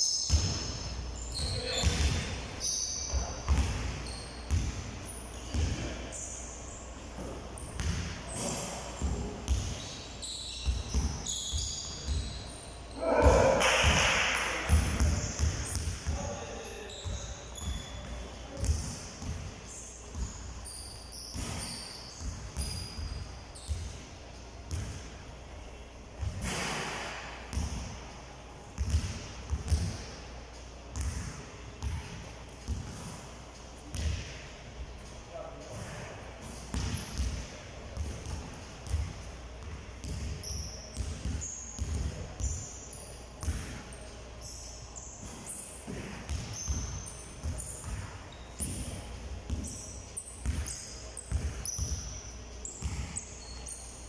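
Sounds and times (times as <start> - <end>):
balls bouncing on hard floor: 1.4 - 2.4, 3.1 - 4.9, 5.5 - 6.0, 7.2 - 9.9, 10.6 - 12.4, 13.0 - 16.4, 28.8 - 30.1, 33.9 - 34.4, 35.7 - 42.6, 45.2 - 53.5.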